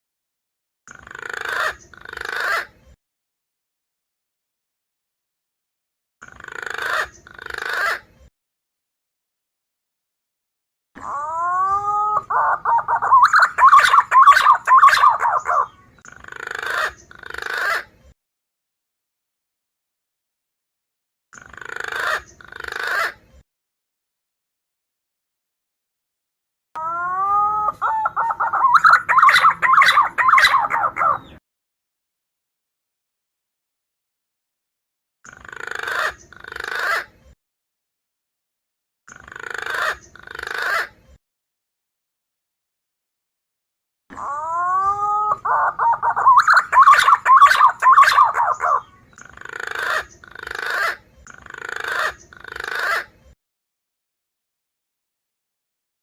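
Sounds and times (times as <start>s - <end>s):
pigeon call whistles: 11.0s - 15.8s, 26.8s - 31.4s, 44.2s - 48.9s.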